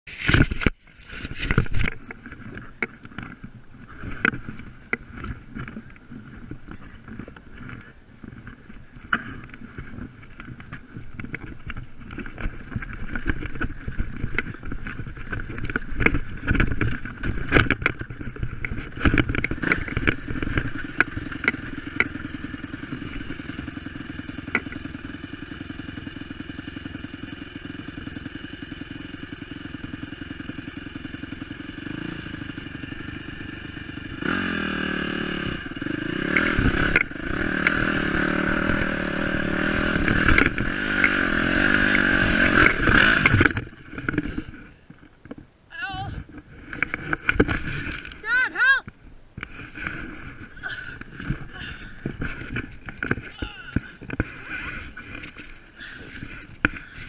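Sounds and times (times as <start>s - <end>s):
knocks and clatters: 0.1s - 22.3s
dirt bike engine idling: 0.2s - 48.3s, 48.9s - 57.0s.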